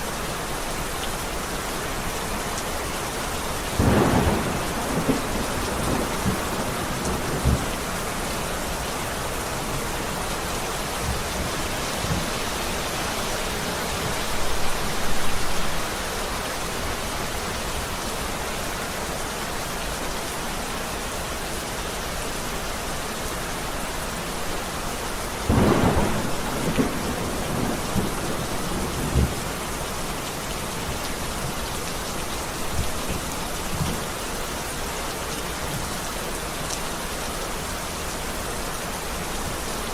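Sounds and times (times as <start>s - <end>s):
heavy rain: 0.0s - 39.9s
thunder rumbling: 3.8s - 15.9s, 25.5s - 31.7s.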